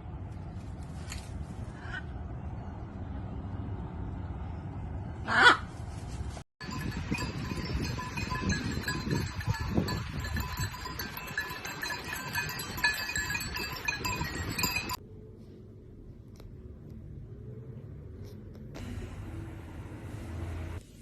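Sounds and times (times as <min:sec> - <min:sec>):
livestock bells clinking: 0:06.6 - 0:15.0.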